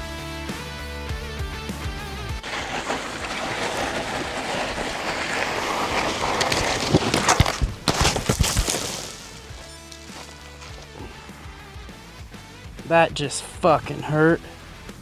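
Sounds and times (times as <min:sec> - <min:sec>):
bike tyre and wind noise: 0:01.9 - 0:12.9
bike knocks and rattles: 0:02.4 - 0:11.3.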